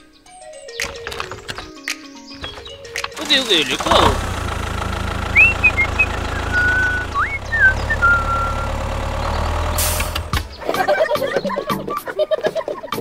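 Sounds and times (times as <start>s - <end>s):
tractor engine droning: 2.4s - 11.1s
rising and falling whistle notes: 5.3s - 9.4s.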